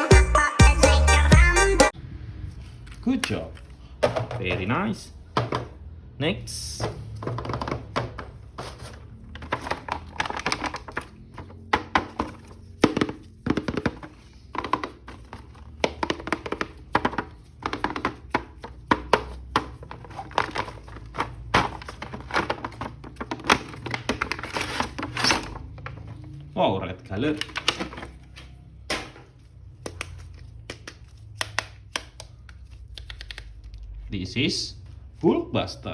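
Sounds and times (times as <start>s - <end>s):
plastic toy packaging handled: 2.6s - 5.7s, 6.8s - 26.5s, 27.1s - 31.5s.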